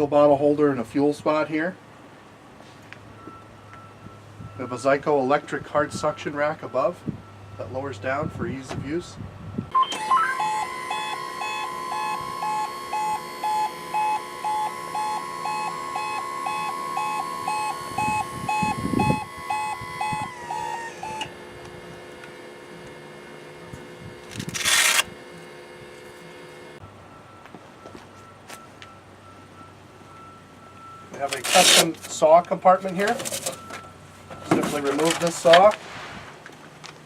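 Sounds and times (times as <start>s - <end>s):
warning beeper pulsing: 9.7s - 21.9s
electric motor whining: 9.8s - 26.8s.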